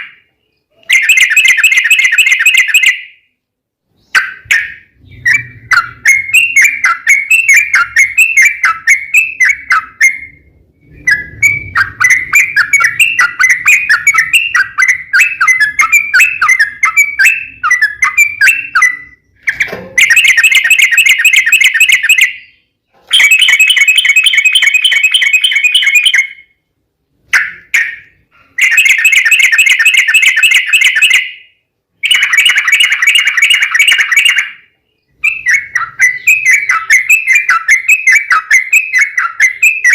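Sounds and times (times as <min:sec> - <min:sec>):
bulbul chattering song: 0:00.0 - 0:39.9
bird rapid trills: 0:23.1 - 0:26.4, 0:32.0 - 0:34.6.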